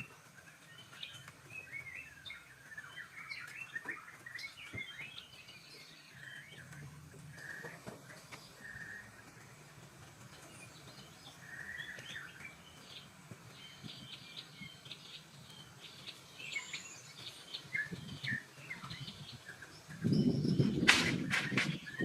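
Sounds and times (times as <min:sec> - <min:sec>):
small birds chirping: 0:00.0 - 0:22.0
low rough noise with knocks: 0:06.4 - 0:15.2, 0:19.9 - 0:22.0.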